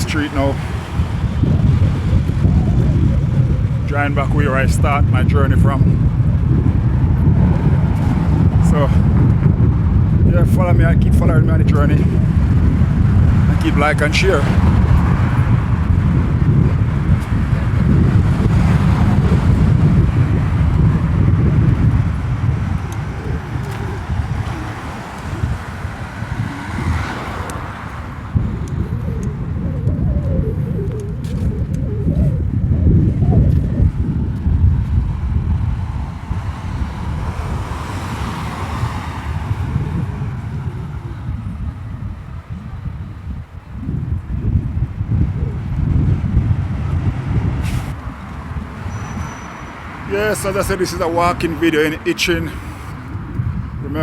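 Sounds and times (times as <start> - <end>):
car tyres passing on road: 0.0 - 5.2, 5.8 - 10.3, 12.1 - 53.8
street traffic: 0.0 - 54.0
wind buffeting microphone: 0.0 - 54.0.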